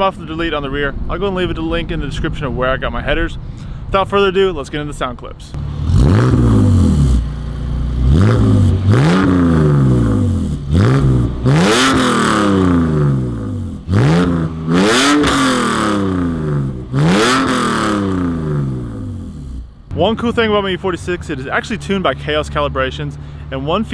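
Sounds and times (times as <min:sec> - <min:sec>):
car engine revving: 0:05.5 - 0:23.9.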